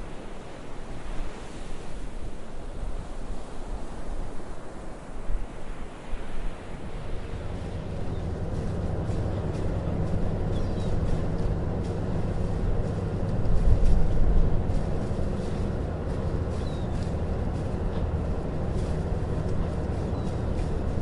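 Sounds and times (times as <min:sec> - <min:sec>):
vehicle engine rumbling: 0:07.1 - 0:21.0.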